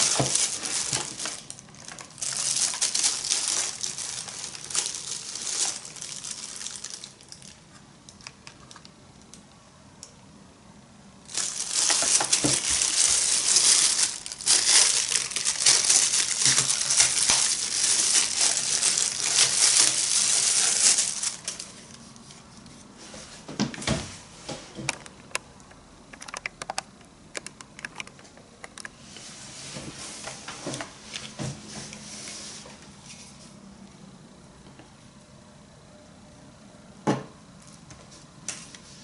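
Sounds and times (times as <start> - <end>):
packaging crinkling: 0.0 - 7.6, 11.3 - 22.0
scattered clicks and taps: 24.8 - 28.9.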